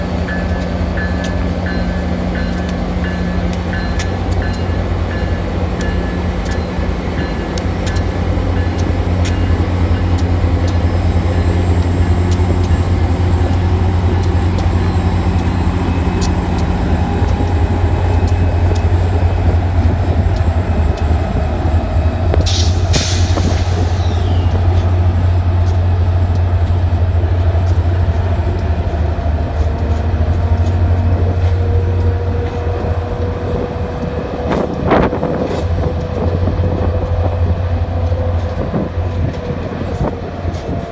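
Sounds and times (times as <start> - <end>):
diesel locomotive drone: 0.0 - 40.9
train clicks: 0.1 - 40.9
sharp hiss: 22.4 - 24.6.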